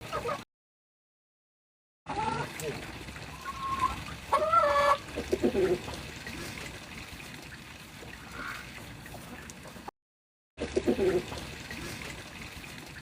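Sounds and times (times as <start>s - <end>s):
hens clucking: 0.0s - 0.4s, 3.3s - 6.4s
water trickling: 2.1s - 9.9s, 10.6s - 13.0s
hen squawking: 3.3s - 5.8s.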